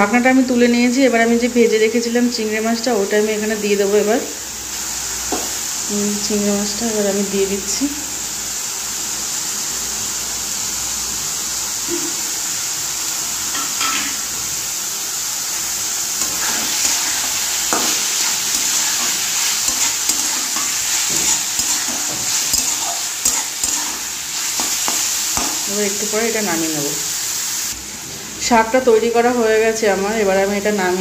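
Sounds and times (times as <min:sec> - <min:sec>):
greens and prawns sizzling in a pan: 0:02.4 - 0:31.0
metal spatula scraping pan: 0:16.2 - 0:25.7.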